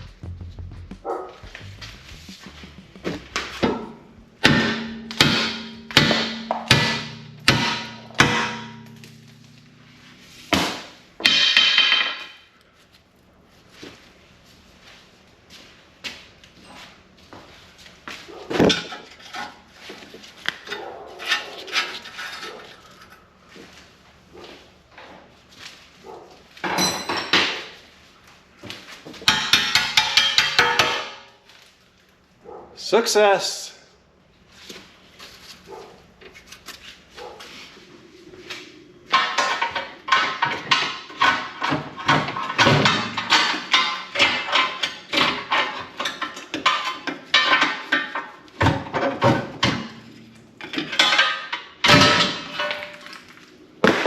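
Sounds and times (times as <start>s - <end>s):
heavy metal blow: 0.0s - 11.8s
metal knocks and scrapes: 0.0s - 12.4s, 18.5s - 23.2s, 29.1s - 31.3s, 38.5s - 53.2s
hammer striking steel: 2.5s - 12.5s, 29.2s - 31.3s, 39.1s - 48.1s.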